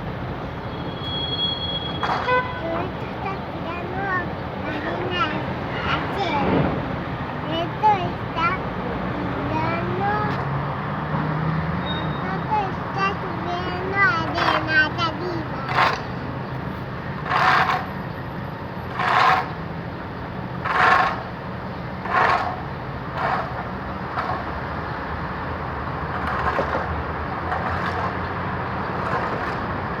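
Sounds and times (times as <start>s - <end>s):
truck engine running: 12.2s - 30.0s.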